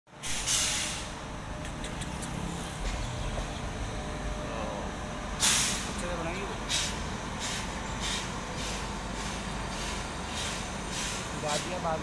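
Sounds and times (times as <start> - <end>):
locomotive low rumble: 0.1 - 12.0
hissing bursts: 5.4 - 6.0.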